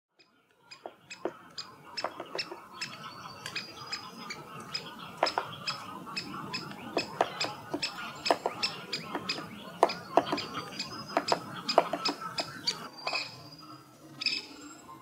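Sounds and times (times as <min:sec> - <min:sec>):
birds chipping and clicking: 0:00.1 - 0:15.0
dull taps: 0:07.0 - 0:12.5.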